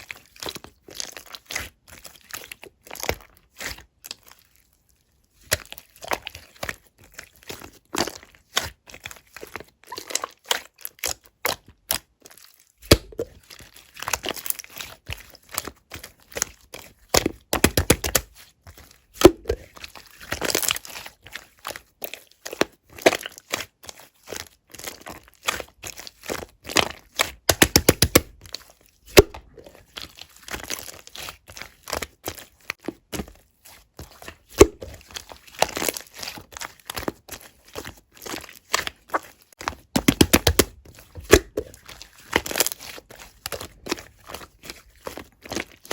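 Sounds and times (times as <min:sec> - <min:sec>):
slime clicks and pops: 0:34.6 - 0:34.9.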